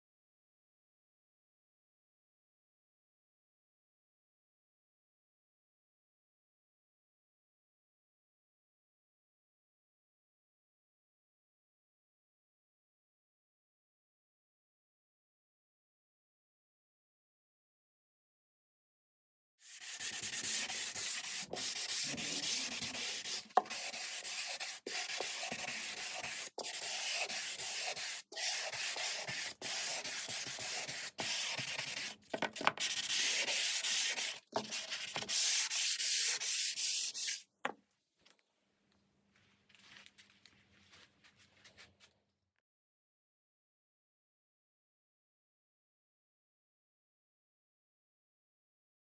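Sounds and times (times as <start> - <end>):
sandpaper rubbing on wood: 19.7 - 37.4.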